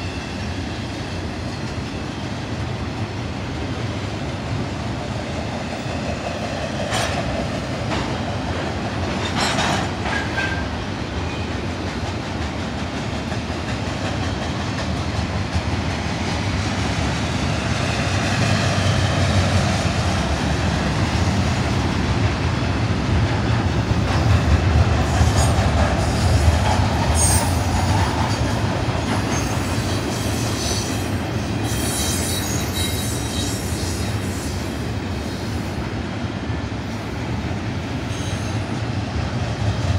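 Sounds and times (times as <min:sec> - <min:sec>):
freight train wheels rumbling: 0:00.0 - 0:39.9
high wheel squeals: 0:31.6 - 0:34.6.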